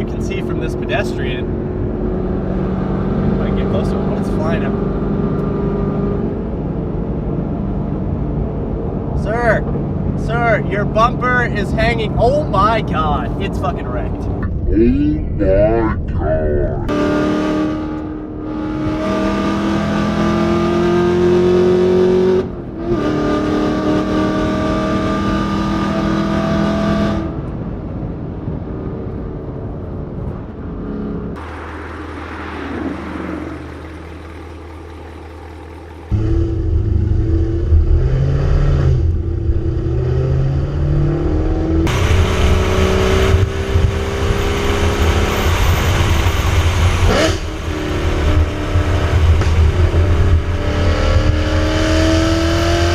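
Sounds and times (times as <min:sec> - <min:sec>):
car engine revving: 0:16.9 - 0:27.5, 0:30.6 - 0:52.9.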